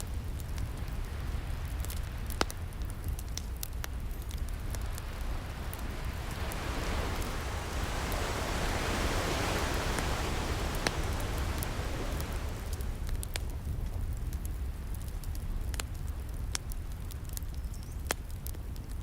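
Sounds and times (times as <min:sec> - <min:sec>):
steady low rumble: 0:00.0 - 0:17.2
wood fire crackling and popping: 0:00.0 - 0:19.0
ocean wave washing in: 0:04.5 - 0:13.6.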